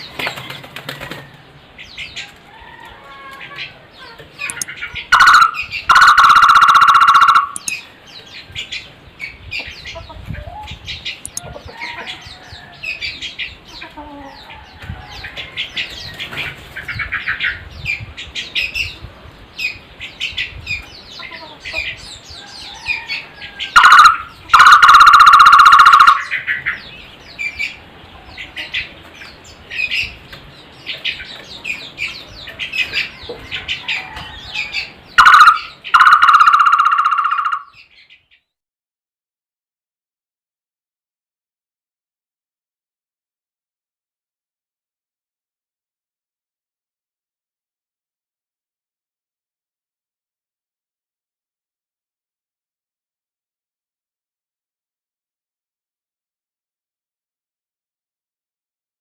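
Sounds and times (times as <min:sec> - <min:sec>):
bird chirps: 0:03.6 - 0:11.5, 0:23.6 - 0:27.8, 0:34.4 - 0:38.6
barbet trilled calls: 0:04.4 - 0:07.9, 0:23.7 - 0:26.7, 0:35.2 - 0:37.8.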